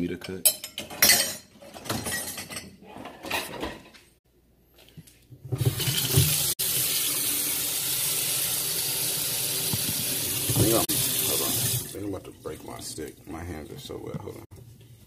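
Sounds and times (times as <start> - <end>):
dishes clinking: 0.2 - 4.0
tap water running into sink: 5.6 - 12.0.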